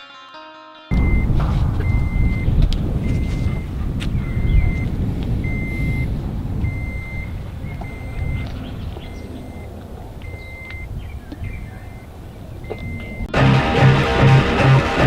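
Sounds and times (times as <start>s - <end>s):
reversing alarm beeping: 0.9s - 10.9s, 11.7s - 13.6s
truck engine rumble: 0.9s - 15.0s.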